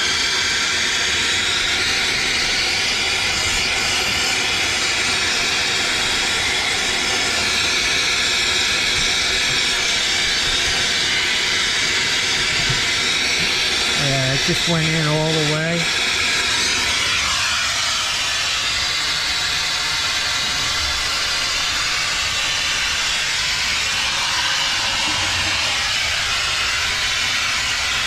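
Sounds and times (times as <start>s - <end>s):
torch burning with steady hiss: 0.0s - 28.0s.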